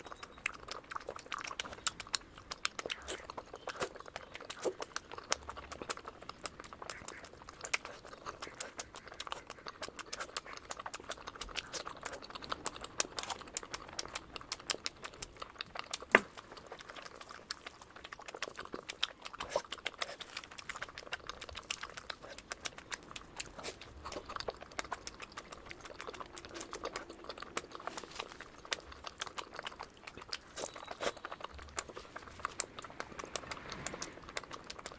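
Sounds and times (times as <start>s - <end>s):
wet chewing and mixing sounds: 0.0s - 34.9s.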